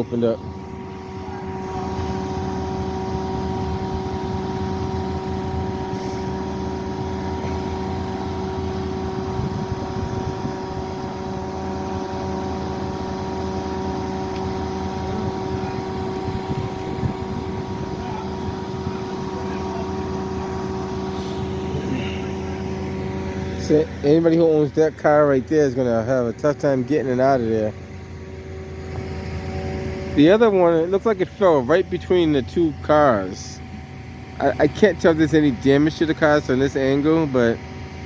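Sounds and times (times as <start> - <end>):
engine droning hum: 0.0 - 38.0.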